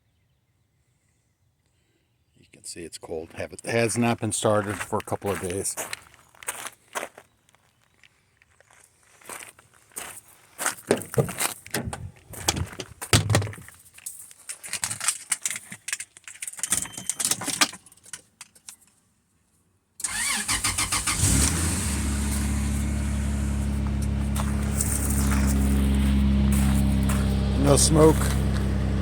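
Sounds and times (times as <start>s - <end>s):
car engine cranking and idling: 20.0s - 29.0s.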